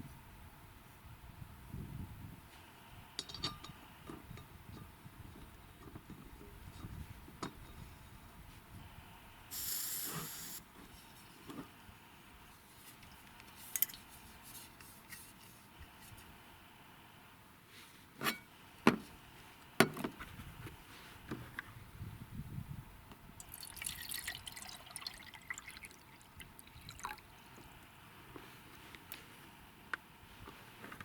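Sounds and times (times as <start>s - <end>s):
short hiss: 9.5s - 10.6s.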